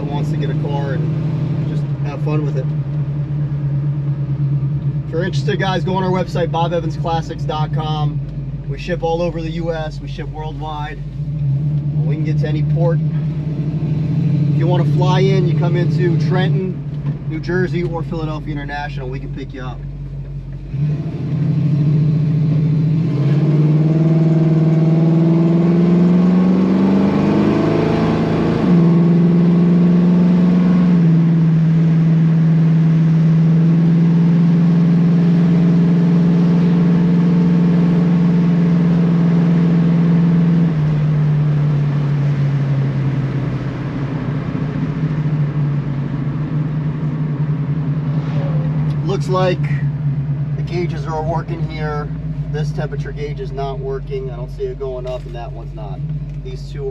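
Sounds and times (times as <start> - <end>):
car engine accelerating: 0.0 - 56.9.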